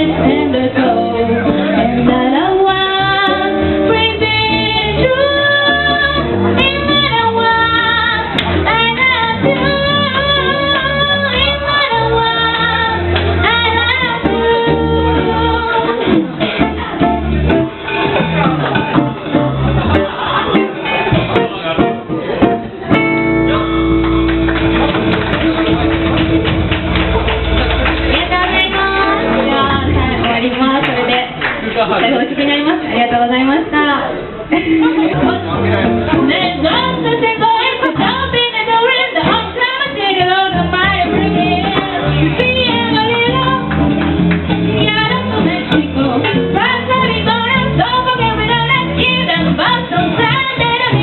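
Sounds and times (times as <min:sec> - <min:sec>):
woman singing: 0:00.0 - 0:16.7, 0:28.1 - 0:31.4, 0:32.2 - 0:44.0, 0:44.8 - 0:51.0
bass line: 0:00.0 - 0:30.8, 0:34.2 - 0:51.0
acoustic band with guitar: 0:00.0 - 0:51.0.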